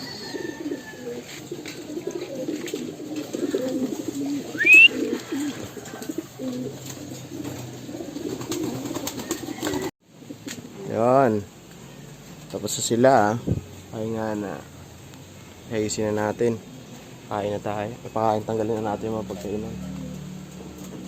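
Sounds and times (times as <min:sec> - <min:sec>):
pigeons cooing: 0:00.0 - 0:11.0, 0:18.7 - 0:21.0.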